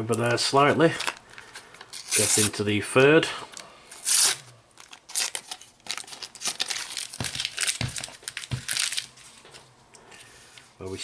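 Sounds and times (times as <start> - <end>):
foil packet tearing and crinkling: 1.9 - 2.6, 4.0 - 9.4.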